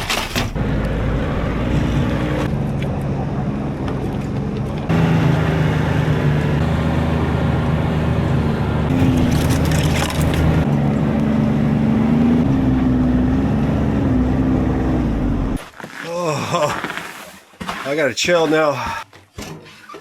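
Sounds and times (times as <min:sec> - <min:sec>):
snowmobile engine running: 0:04.9 - 0:10.6.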